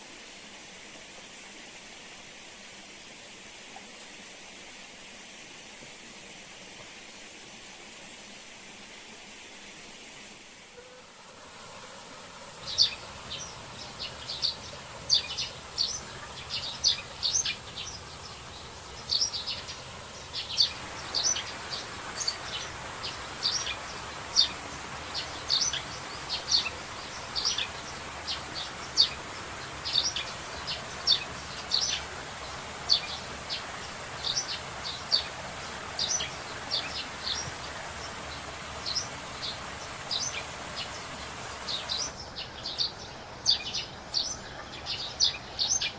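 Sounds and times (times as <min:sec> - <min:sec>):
steady hiss: 0:00.0 - 0:45.9
birds chirping: 0:12.6 - 0:45.9.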